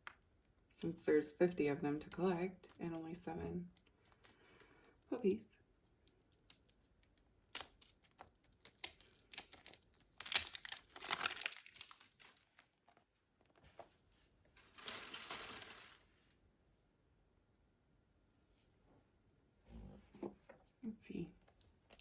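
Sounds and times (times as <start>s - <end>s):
plastic packaging crinkling and tearing: 7.5s - 12.7s, 14.6s - 16.0s.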